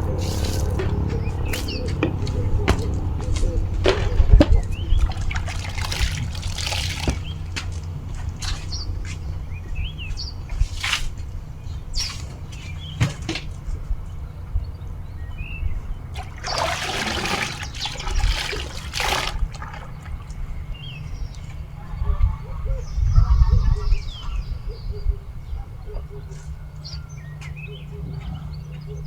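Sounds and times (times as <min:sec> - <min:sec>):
water splashing and pouring: 0:00.0 - 0:02.4, 0:03.0 - 0:08.7, 0:10.5 - 0:11.3, 0:16.1 - 0:20.9
small birds chirping: 0:00.0 - 0:29.0.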